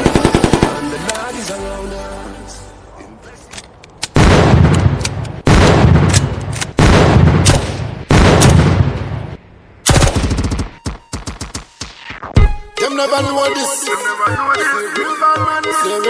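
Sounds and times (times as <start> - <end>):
gunshot blasts: 4.2 - 11.7
machine-gun fire volley: 4.2 - 11.7.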